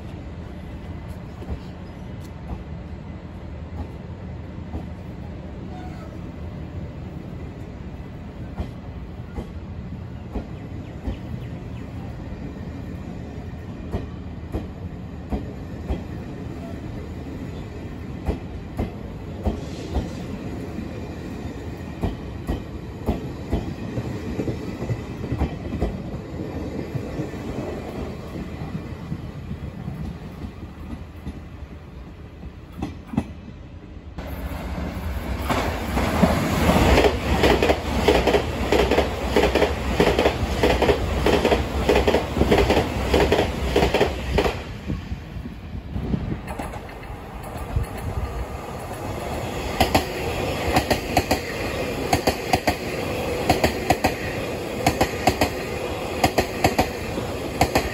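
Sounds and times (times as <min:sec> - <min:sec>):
train passing at speed clattering: 0:00.0 - 0:05.4, 0:06.6 - 0:57.9
train wheels clicking over joints: 0:35.4 - 0:44.7, 0:48.8 - 0:57.9.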